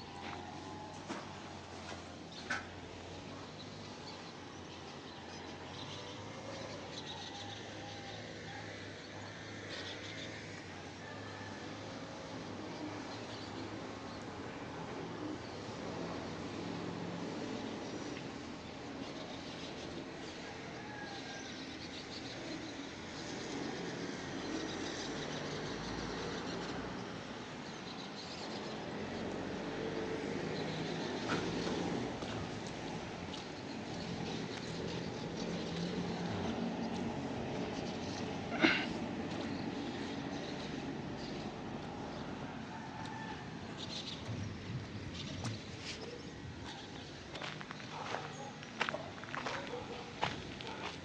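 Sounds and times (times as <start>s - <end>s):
outdoor street noise: 0.0s - 51.0s
vehicle passing by: 21.8s - 51.0s.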